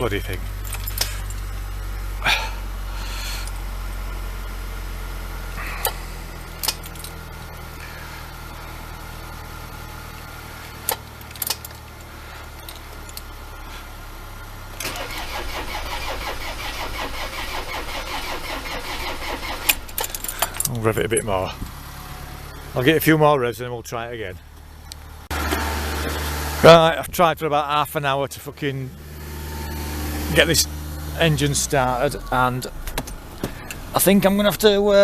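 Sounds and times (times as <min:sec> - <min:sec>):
car engine idling: 0:00.0 - 0:35.0
starter motor cranking engine: 0:05.4 - 0:08.7, 0:14.7 - 0:22.2
sharp engine knocks: 0:32.8 - 0:33.8.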